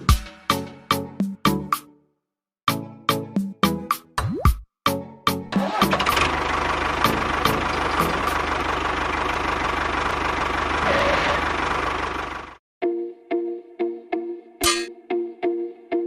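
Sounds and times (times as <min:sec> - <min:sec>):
engine idling with low knocking: 0:06.0 - 0:12.6.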